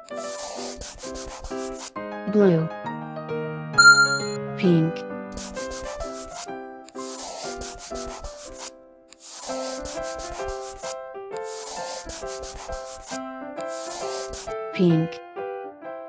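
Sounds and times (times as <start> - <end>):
marker scribbling on paper: 0.0 - 1.9, 5.3 - 14.6
plinking children's melody: 3.8 - 4.4.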